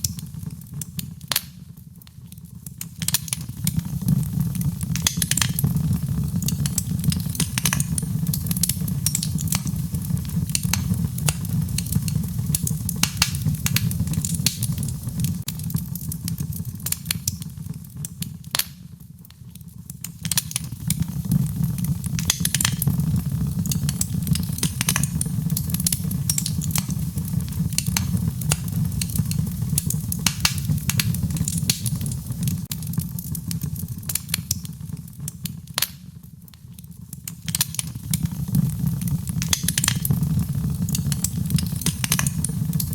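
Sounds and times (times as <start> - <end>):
wood fire crackling and popping: 0.0 - 42.9
low rain-like rush: 20.9 - 33.0.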